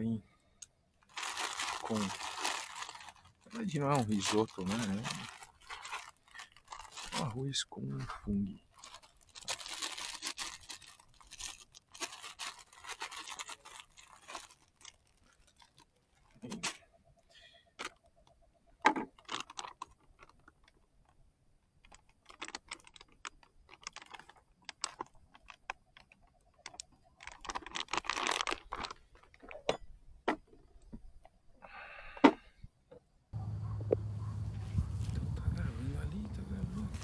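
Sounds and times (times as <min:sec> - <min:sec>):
packaging rustling and crunching: 0:01.0 - 0:07.5, 0:08.6 - 0:16.8, 0:19.1 - 0:21.2, 0:21.8 - 0:29.6.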